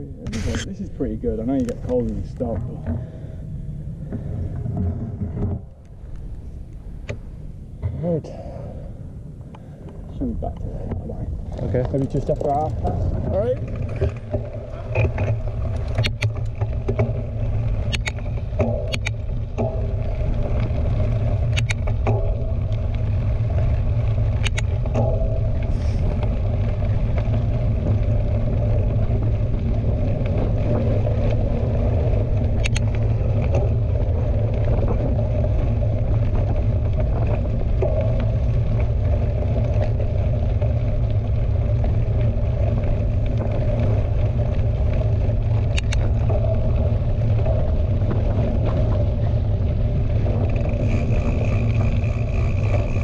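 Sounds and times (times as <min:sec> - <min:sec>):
bike tyres rolling on trail: 0:00.0 - 0:53.0
wind buffeting camera: 0:00.0 - 0:53.0
sharp clicks: 0:17.8 - 0:19.2, 0:21.5 - 0:22.8, 0:24.4 - 0:25.1, 0:32.6 - 0:33.0, 0:45.7 - 0:46.1.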